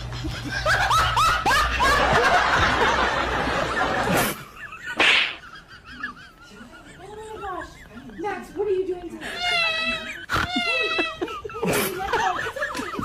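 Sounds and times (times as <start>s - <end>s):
person laughing hard: 3.8s - 13.0s.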